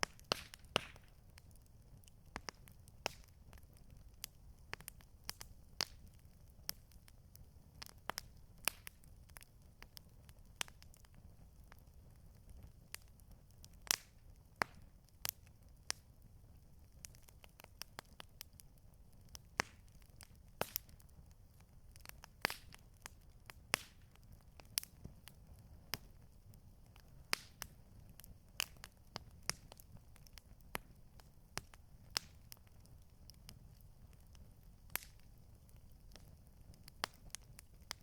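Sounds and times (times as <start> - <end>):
campfire crackling: 0.0 - 38.0.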